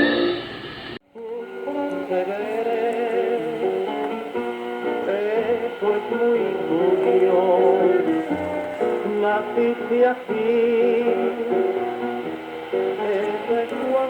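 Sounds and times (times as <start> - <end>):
guitar music on shortwave radio: 0.0 - 14.0.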